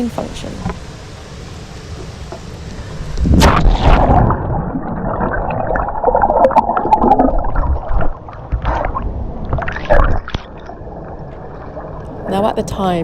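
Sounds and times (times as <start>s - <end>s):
water gurgling and sloshing: 0.0s - 13.0s
splash into water: 3.3s - 10.6s.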